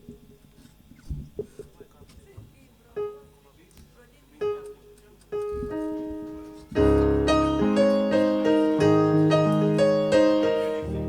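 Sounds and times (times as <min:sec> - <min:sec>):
electric keyboard chords: 0:04.4 - 0:11.0.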